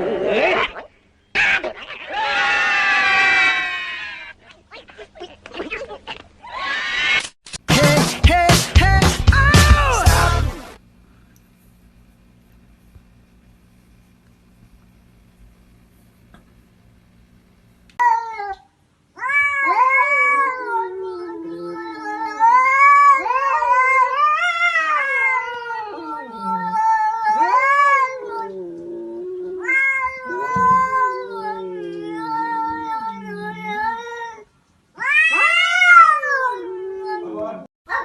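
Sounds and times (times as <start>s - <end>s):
cat yowling: 2.0s - 4.4s, 19.2s - 28.7s, 29.4s - 38.0s.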